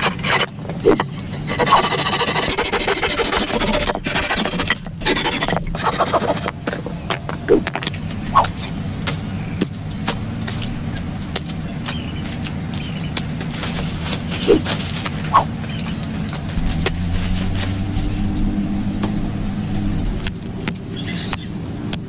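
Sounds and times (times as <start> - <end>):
rough scraping and rasping: 0.0 - 7.0, 16.5 - 20.5.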